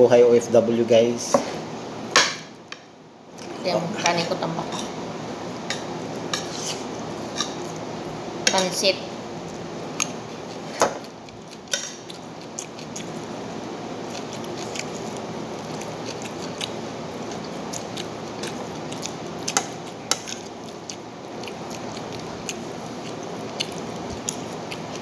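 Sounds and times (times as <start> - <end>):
steady background hum: 0.0 - 25.0
person chewing food: 9.3 - 25.0.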